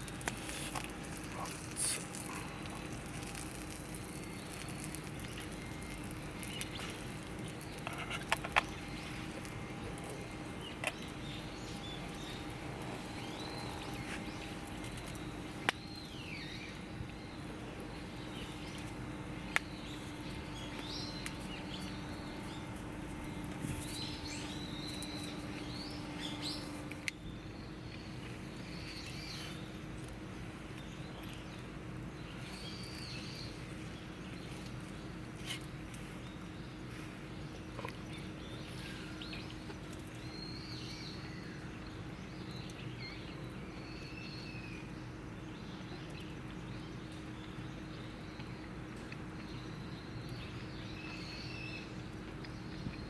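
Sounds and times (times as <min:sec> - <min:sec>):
small birds chirping: 0:00.0 - 0:53.0
steady low hum: 0:00.0 - 0:53.0.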